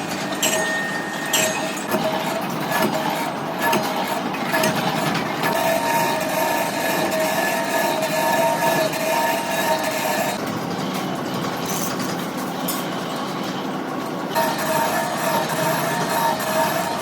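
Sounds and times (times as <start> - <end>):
high metallic squeal: 5.5 - 10.4, 14.4 - 17.0.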